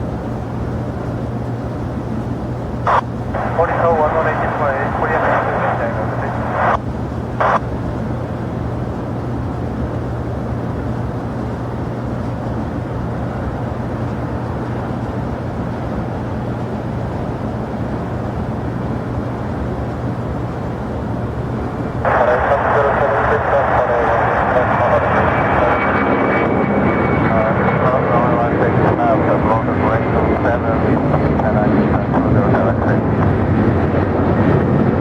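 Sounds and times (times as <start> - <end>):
constant low hum: 0.0 - 35.0
jet engines rumbling: 0.0 - 35.0
radio blips: 2.9 - 6.8, 7.4 - 7.6, 22.0 - 26.0.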